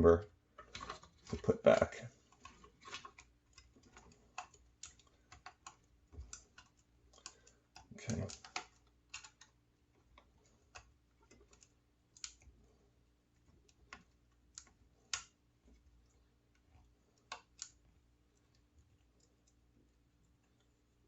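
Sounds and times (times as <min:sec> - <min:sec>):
clicks of handling plastic parts: 0:00.5 - 0:12.6.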